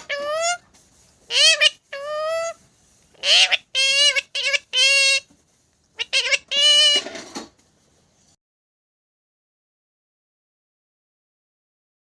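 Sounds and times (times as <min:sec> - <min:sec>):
parrot calling: 0:00.0 - 0:00.6, 0:01.3 - 0:05.3, 0:06.0 - 0:07.2.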